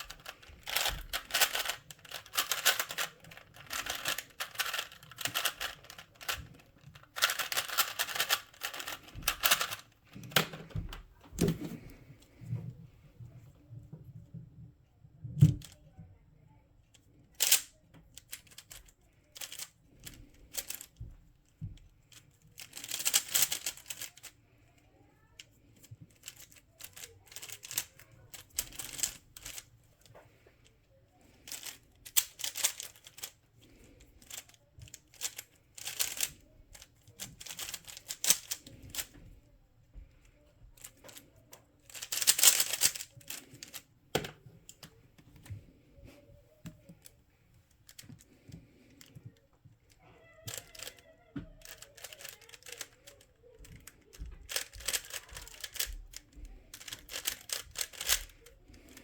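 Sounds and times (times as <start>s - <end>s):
speed cube clicking turns: 0.0s - 10.5s, 17.4s - 17.7s, 22.6s - 24.3s, 26.1s - 29.7s, 31.4s - 39.1s, 41.9s - 43.8s, 50.5s - 59.0s.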